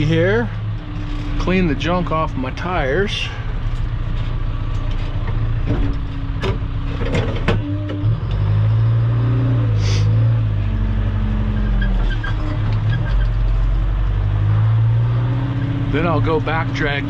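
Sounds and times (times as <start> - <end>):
heavy machine engine running: 0.0 - 15.2
sharp knocks and rattles: 4.1 - 7.6.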